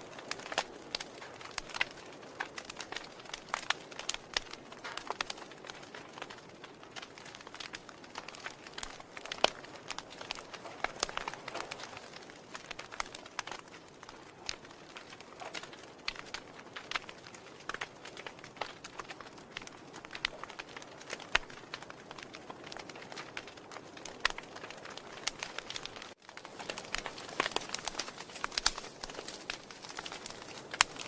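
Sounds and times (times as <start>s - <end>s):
wood fire crackling: 0.0s - 31.0s.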